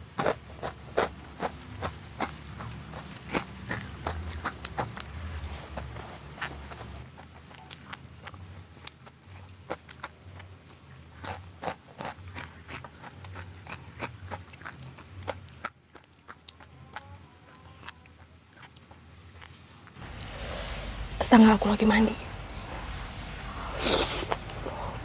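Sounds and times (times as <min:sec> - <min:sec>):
chewing crunchy food: 0:00.0 - 0:20.7
wet mouth sounds: 0:00.1 - 0:20.4, 0:23.6 - 0:25.0.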